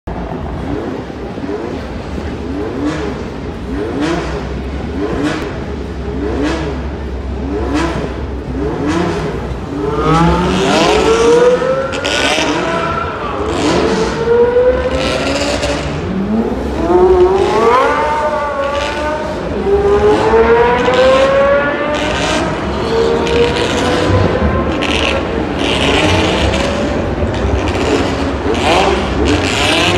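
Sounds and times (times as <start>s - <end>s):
car engines revving: 0.1s - 29.9s.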